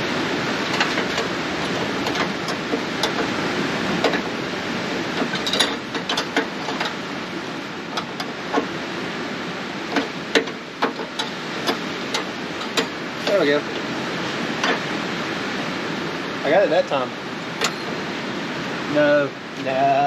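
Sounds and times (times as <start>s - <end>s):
rain hissing: 0.0s - 20.0s
hand tool clicking and tapping: 9.9s - 13.8s.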